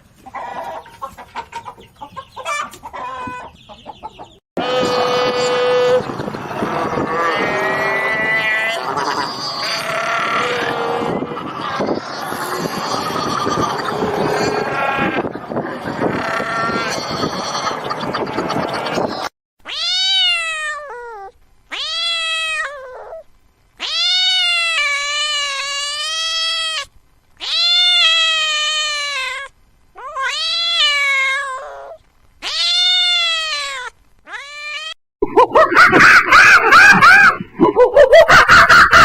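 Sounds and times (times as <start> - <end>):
cat yowling: 19.6 - 23.2, 23.8 - 35.0.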